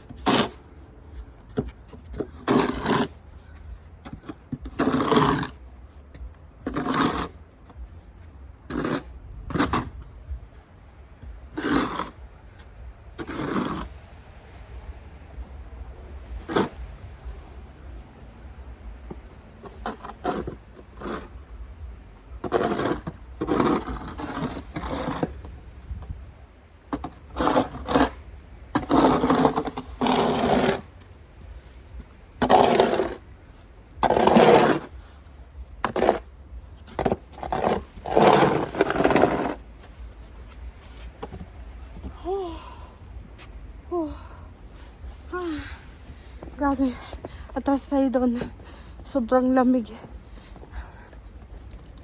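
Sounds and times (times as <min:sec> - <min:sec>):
snow shovel scraping on pavement: 0:00.0 - 0:07.8, 0:08.7 - 0:10.0, 0:11.4 - 0:12.6, 0:13.2 - 0:14.0, 0:16.3 - 0:16.9, 0:19.6 - 0:21.5, 0:22.4 - 0:25.6, 0:26.9 - 0:51.5
steady low rumble: 0:05.4 - 0:52.0.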